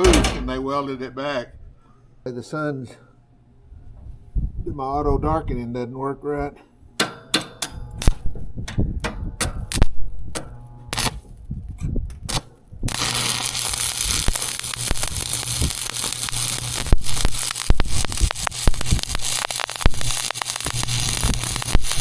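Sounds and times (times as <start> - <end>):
low steady hum: 0.0 - 22.0
welding arc clicks: 7.0 - 11.4, 12.1 - 22.0
welding arc crackling: 7.0 - 11.5, 12.1 - 22.0.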